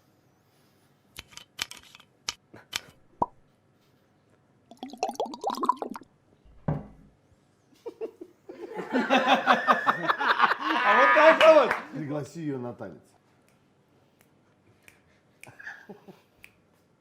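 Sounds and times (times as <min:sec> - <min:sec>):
people laughing: 0:07.8 - 0:11.9.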